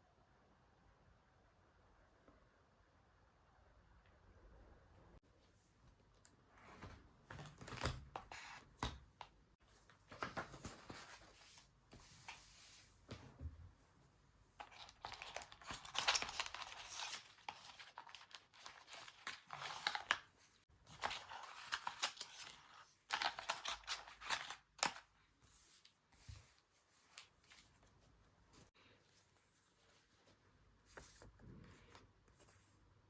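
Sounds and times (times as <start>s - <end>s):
paper crinkling and tearing: 14.6s - 20.3s.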